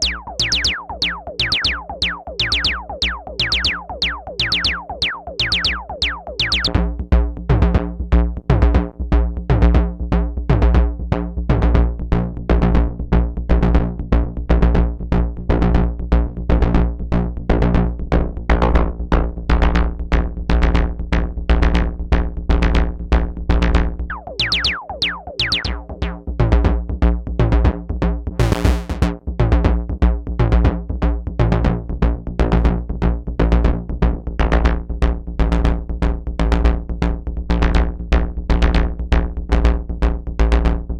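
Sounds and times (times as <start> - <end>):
synthesizer drum pattern: 0.0 - 6.8, 24.1 - 26.5, 28.4 - 29.1.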